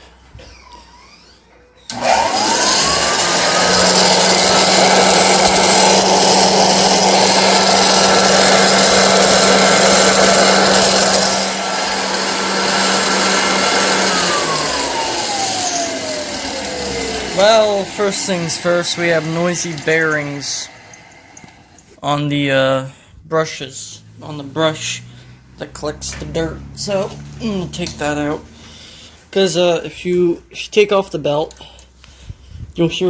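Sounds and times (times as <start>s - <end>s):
vacuum cleaner motor whine: 0.3s - 21.8s
vacuum cleaner switch: 0.5s - 21.6s.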